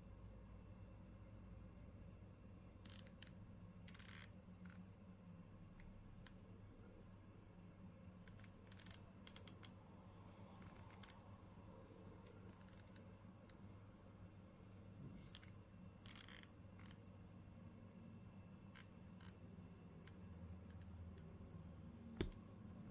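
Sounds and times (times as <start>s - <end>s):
laptop hinge creaking and clicking: 2.8s - 4.8s, 8.2s - 9.8s, 10.6s - 11.2s, 12.3s - 13.6s, 15.3s - 17.0s, 18.7s - 19.4s, 22.2s - 22.4s.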